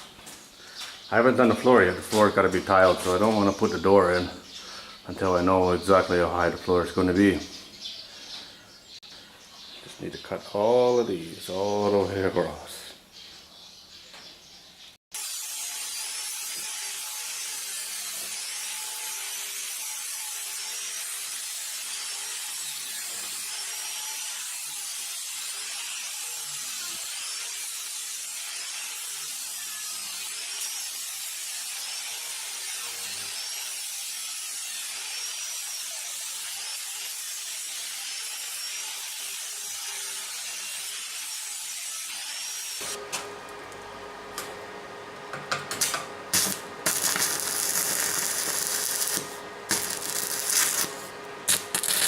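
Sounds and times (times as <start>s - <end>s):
arc welding crackle: 15.2s - 43.1s, 45.7s - 52.0s.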